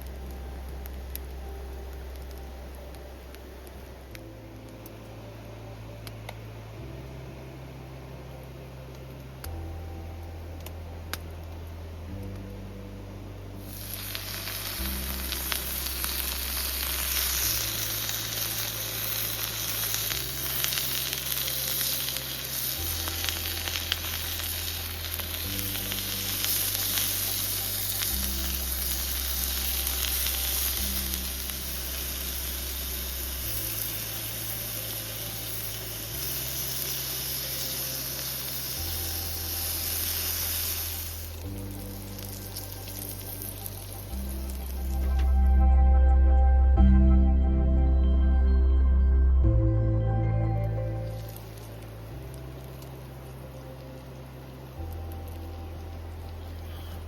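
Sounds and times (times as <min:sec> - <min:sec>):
background music with bass: 0:00.0 - 0:57.0
food sizzling in a pan: 0:13.6 - 0:45.5, 0:50.6 - 0:57.0.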